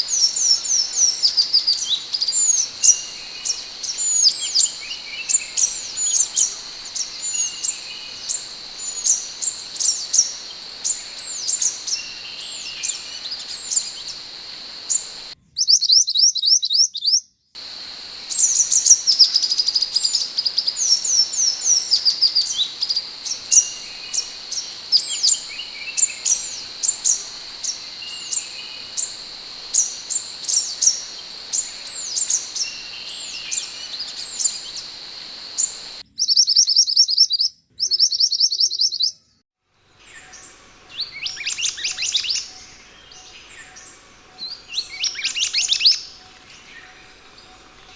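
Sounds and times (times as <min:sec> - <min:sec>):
bird whistled chirps: 0:00.0 - 0:15.4, 0:17.6 - 0:36.0
steady high-pitched hum: 0:00.0 - 0:15.4, 0:17.6 - 0:36.0.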